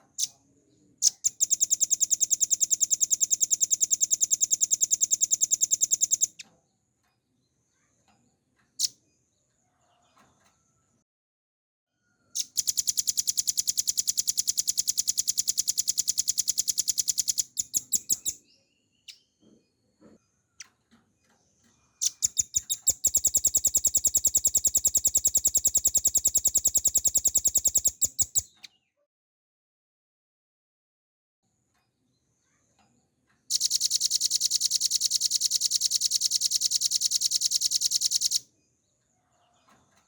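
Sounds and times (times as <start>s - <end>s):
bird rattling trills: 1.0s - 6.3s, 12.4s - 18.4s, 22.0s - 28.5s, 33.5s - 38.4s
bird chips: 1.0s - 6.4s, 12.4s - 18.4s, 22.0s - 28.7s, 33.5s - 38.4s.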